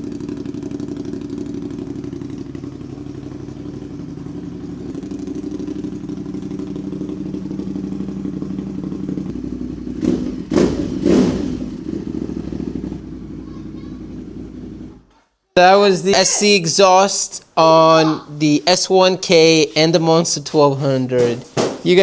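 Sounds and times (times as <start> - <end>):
motorcycle engine idling: 0.0 - 15.1.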